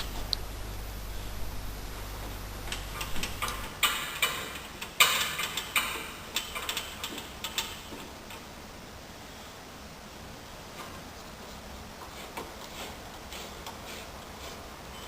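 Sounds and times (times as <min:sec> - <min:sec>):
irregular sharp clicks and knocks: 0:02.6 - 0:08.5.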